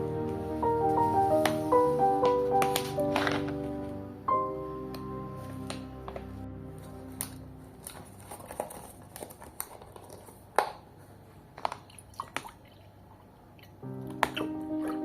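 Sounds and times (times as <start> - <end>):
background music: 0.0 - 8.8, 13.8 - 15.0.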